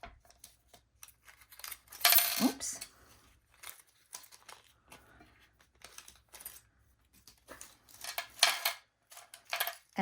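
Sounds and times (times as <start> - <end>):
packaging rustling: 3.2 - 8.2.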